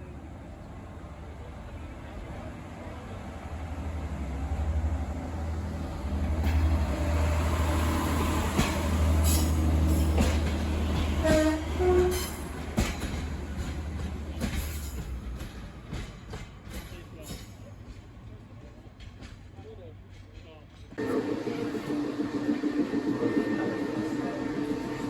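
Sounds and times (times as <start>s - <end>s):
train engine rumble: 0.0s - 25.0s
two-note train horn: 11.2s - 12.4s, 21.0s - 25.0s.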